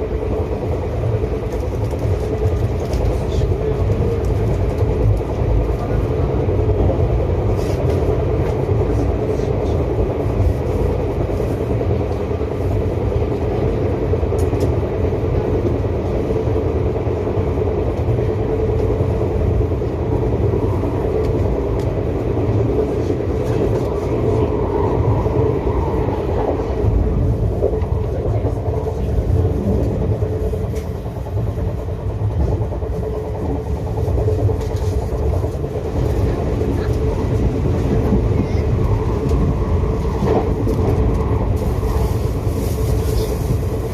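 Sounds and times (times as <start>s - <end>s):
constant hum: 0.0s - 43.9s
train wheels rumbling on rails: 0.0s - 43.9s.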